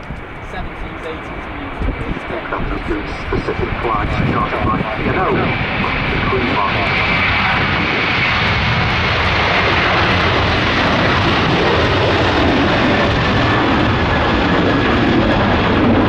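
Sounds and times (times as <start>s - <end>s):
jet airliner taking off: 0.0s - 16.0s.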